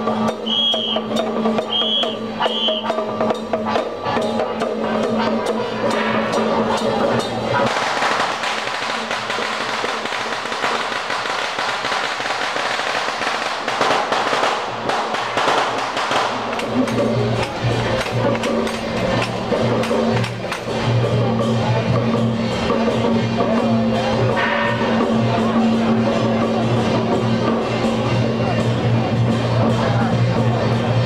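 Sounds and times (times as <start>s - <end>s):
procession drums and clashing strikes: 0.0s - 31.0s
firecrackers crackling: 5.9s - 21.2s.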